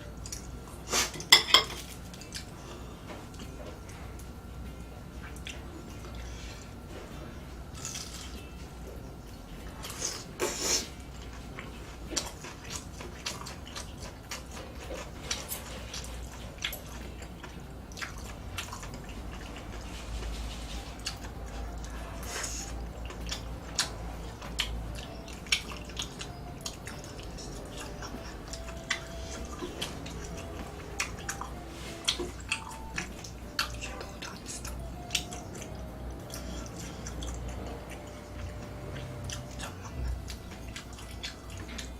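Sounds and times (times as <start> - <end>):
wet chewing and smacking: 5.1 - 6.7, 11.0 - 41.9.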